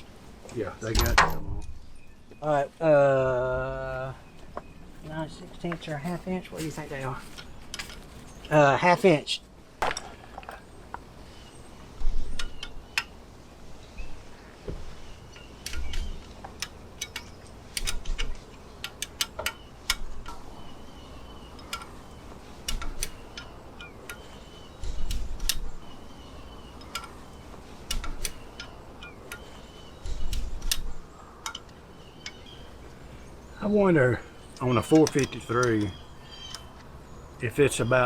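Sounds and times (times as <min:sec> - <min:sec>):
metallic wrench clicks: 0:27.9 - 0:29.4.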